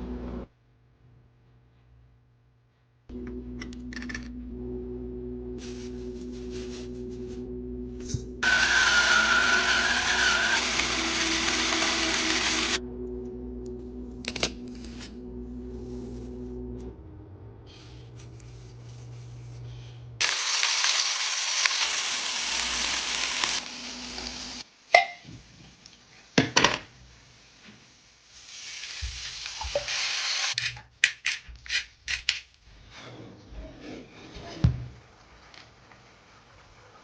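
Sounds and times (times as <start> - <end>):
food sizzling in a pan: 20.2 - 24.7, 27.0 - 30.6.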